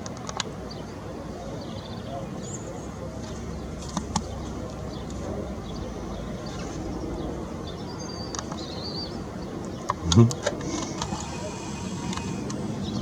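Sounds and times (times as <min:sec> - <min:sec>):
birds chirping: 0:00.7 - 0:13.0.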